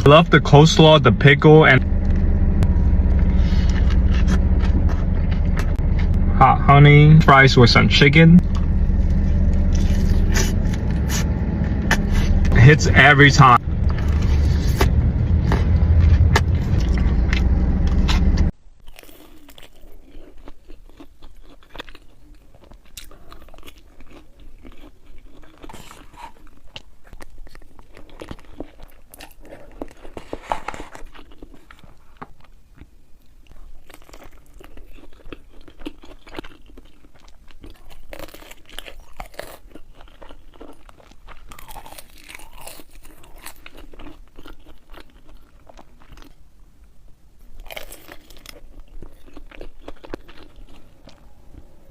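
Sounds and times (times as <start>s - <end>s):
loud low rumble: 0.0s - 18.5s
crunchy chewing: 3.1s - 6.2s, 8.4s - 12.5s, 15.5s - 46.6s, 47.4s - 51.9s.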